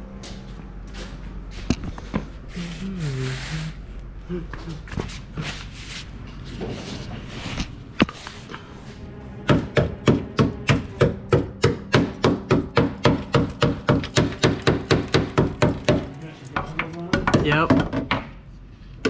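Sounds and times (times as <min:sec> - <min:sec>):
hammer striking steel frame: 0:09.4 - 0:18.3.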